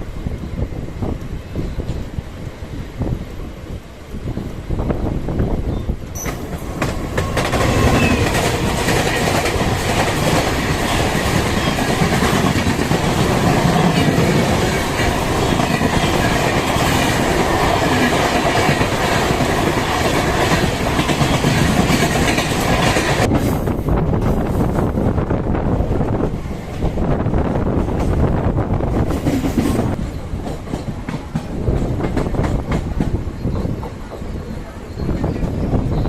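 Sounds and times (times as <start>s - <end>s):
train wheels clattering over rails: 6.1s - 25.0s, 26.0s - 36.0s.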